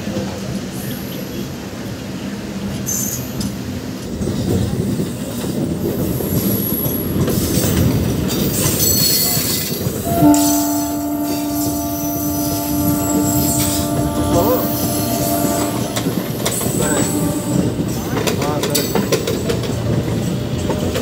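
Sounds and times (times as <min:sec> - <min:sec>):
train wheels rumbling on rail: 0:00.0 - 0:21.0
faint high wheel squeal: 0:08.6 - 0:18.5
train horn chord: 0:09.9 - 0:18.6.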